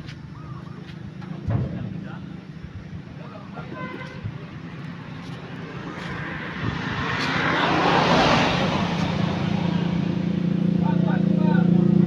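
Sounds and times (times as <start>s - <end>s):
vehicle passing by: 4.9s - 12.0s.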